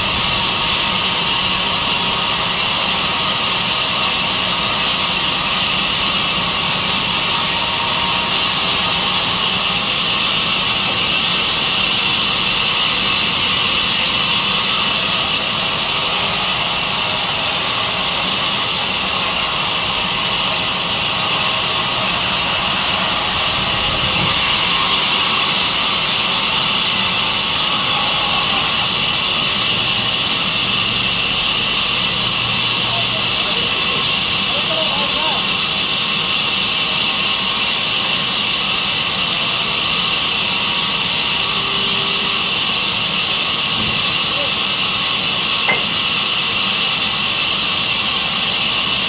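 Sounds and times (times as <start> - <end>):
sawmill saw hissing and humming: 0.0 - 49.0.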